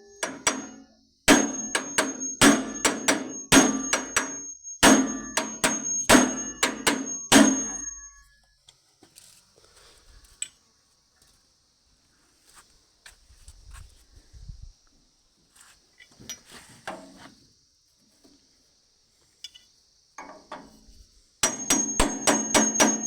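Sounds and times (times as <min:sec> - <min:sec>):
hammer striking metal: 0:00.0 - 0:08.2, 0:21.4 - 0:23.0.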